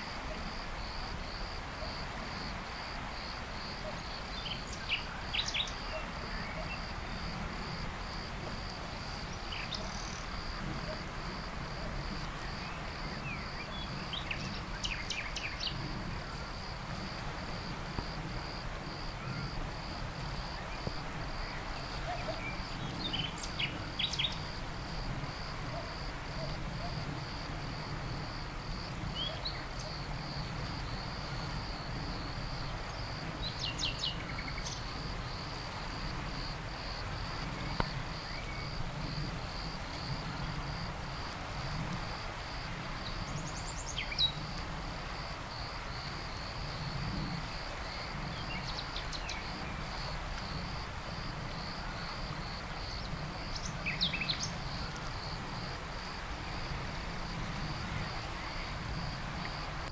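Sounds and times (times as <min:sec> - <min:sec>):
insects chirring: 0:00.5 - 0:26.1.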